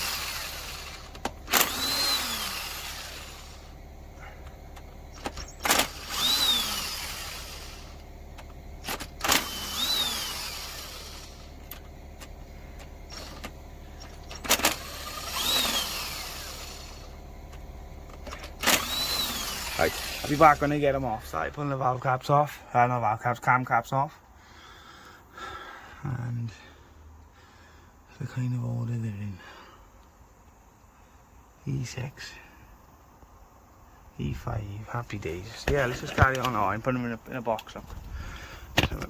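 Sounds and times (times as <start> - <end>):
power tool click: 0.0 - 3.6, 4.4 - 12.3, 13.1 - 20.8
power tool motor whine: 0.0 - 21.1.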